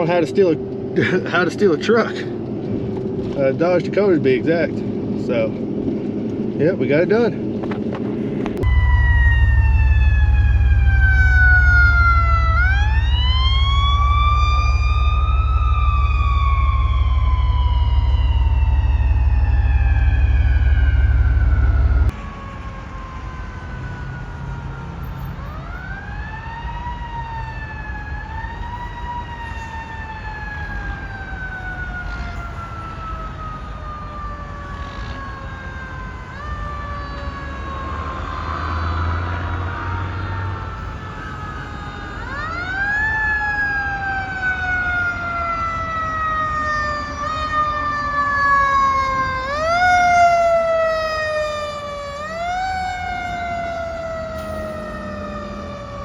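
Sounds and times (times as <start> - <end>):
low engine drone: 0.2 - 23.3, 49.5 - 56.0
siren rising and falling: 8.5 - 56.0.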